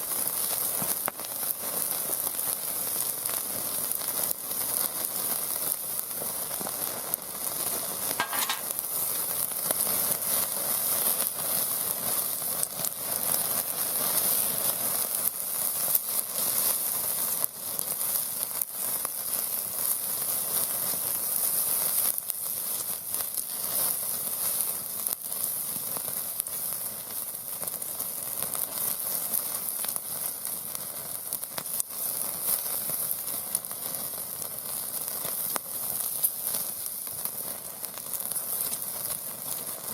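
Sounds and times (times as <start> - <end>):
meat sizzling over fire: 0.0 - 39.9.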